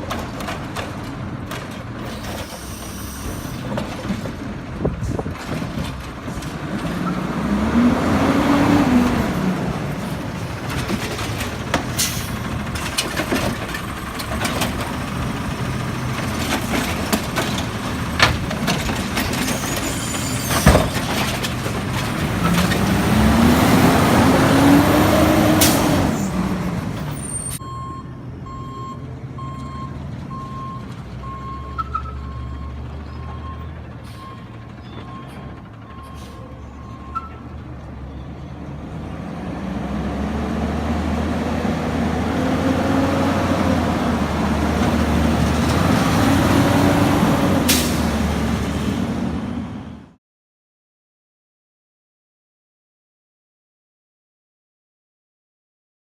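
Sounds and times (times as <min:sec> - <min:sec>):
garbage truck engine running: 0:00.0 - 0:50.2
backup alarm beeping: 0:27.6 - 0:34.4.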